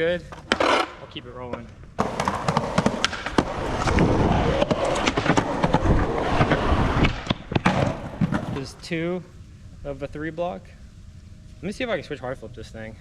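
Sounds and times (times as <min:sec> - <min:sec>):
skateboard wheels rolling on concrete: 0:00.0 - 0:10.6
skateboard clacks: 0:01.5 - 0:08.7.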